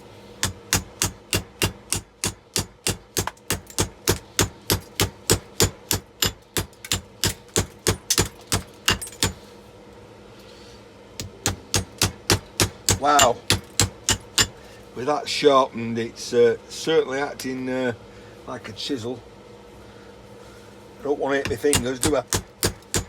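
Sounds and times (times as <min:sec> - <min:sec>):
hammer striking metal: 0:00.4 - 0:09.4, 0:11.2 - 0:14.6, 0:21.5 - 0:23.0.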